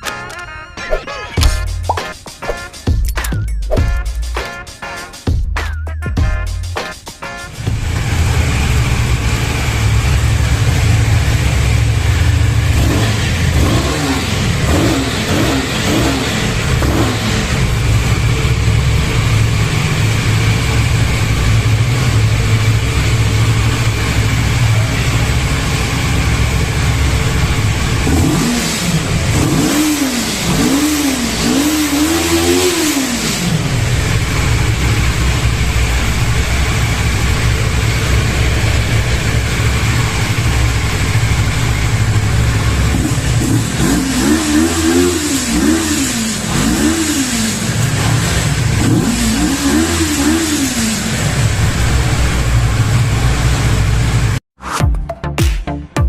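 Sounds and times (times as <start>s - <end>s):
motorcycle engine idling: 7.5s - 49.3s
motorcycle engine revving: 7.5s - 54.4s.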